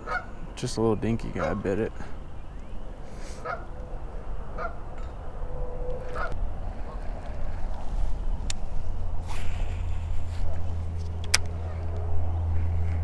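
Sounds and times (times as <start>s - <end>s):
geese honking: 0.0s - 0.4s, 1.2s - 1.9s, 3.2s - 5.1s, 6.0s - 7.0s
low steady rumble: 2.0s - 13.0s.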